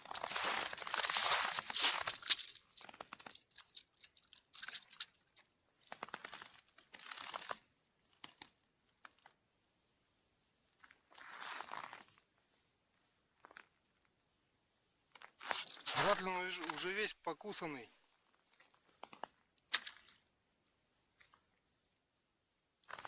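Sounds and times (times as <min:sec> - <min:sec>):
crunching and rustling: 0:00.0 - 0:07.6.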